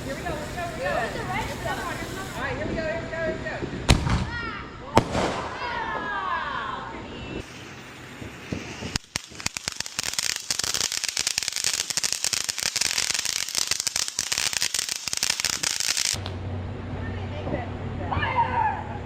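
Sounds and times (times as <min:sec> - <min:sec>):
firework hiss: 0:00.0 - 0:02.9, 0:07.0 - 0:16.3
firework crackling: 0:00.0 - 0:16.4.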